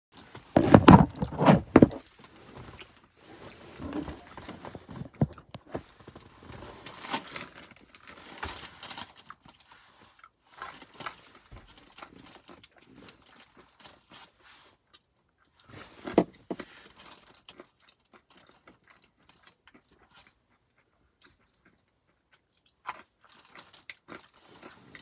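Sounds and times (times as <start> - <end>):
rustling clatter: 0.3 - 7.7
almonds being chewed: 2.7 - 8.2, 9.0 - 25.0.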